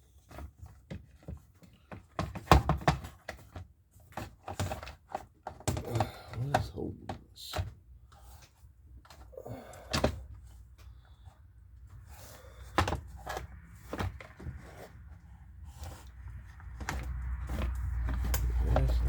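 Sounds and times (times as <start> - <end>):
low rumble: 17.1 - 19.0.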